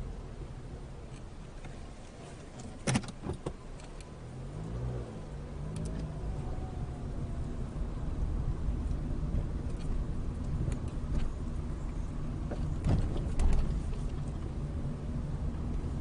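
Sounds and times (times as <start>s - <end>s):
engine revving: 4.3s - 8.2s.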